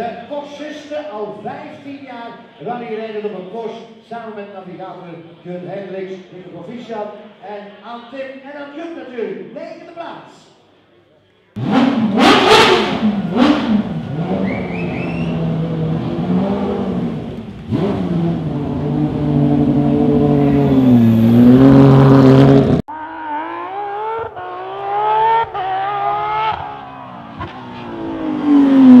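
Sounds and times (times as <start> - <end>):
car engine revving: 11.6 - 29.0.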